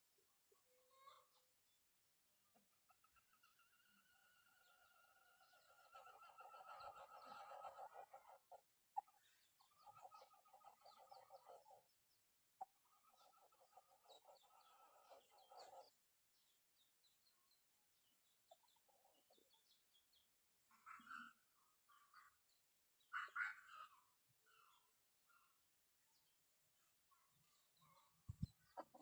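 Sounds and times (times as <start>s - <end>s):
chickens calling: 2.6s - 16.5s, 27.2s - 29.0s.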